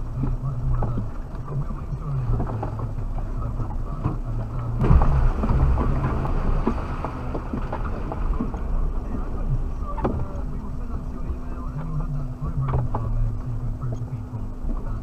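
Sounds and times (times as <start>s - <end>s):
heavy rumbling jolt: 0.0s - 11.4s
car engine at low revs: 0.0s - 15.0s
knocks and rattles over rough ground: 0.0s - 15.0s.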